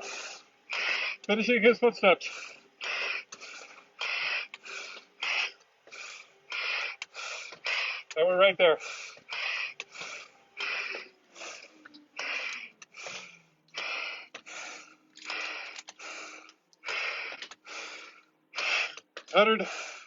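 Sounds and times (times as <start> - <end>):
man breathing heavily: 0.0 - 1.4, 2.0 - 20.0.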